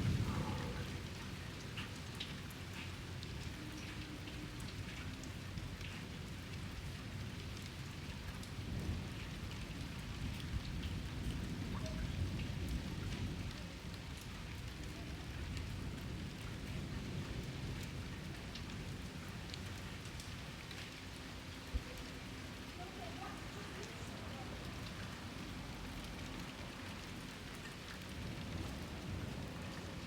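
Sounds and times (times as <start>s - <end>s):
thunder rumbling: 0.0s - 1.6s
rain pattering: 0.0s - 30.0s.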